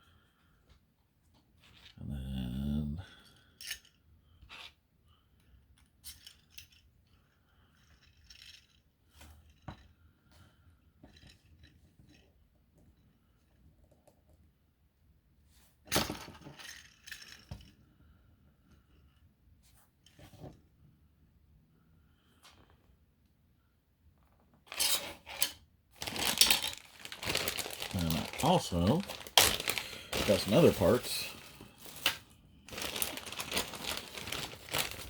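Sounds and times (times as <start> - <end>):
plastic parts clattering: 24.7 - 35.0.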